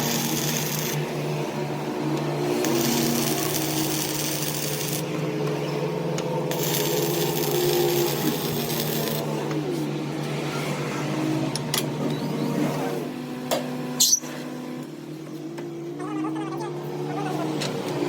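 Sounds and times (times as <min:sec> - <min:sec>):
harsh high grinding noise: 0:00.0 - 0:01.2, 0:02.3 - 0:05.1, 0:06.5 - 0:09.3
workshop machine humming: 0:00.0 - 0:18.0.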